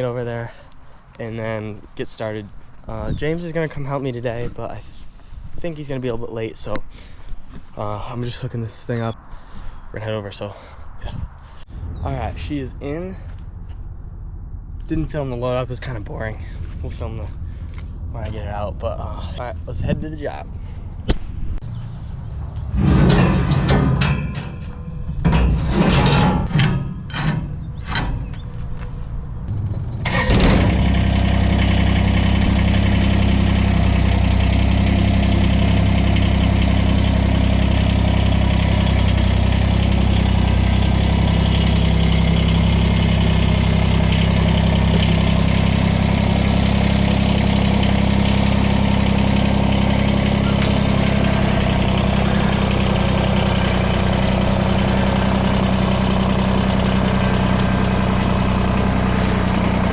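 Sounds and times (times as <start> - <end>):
vehicle engine starting and idling: 21.6 - 59.9.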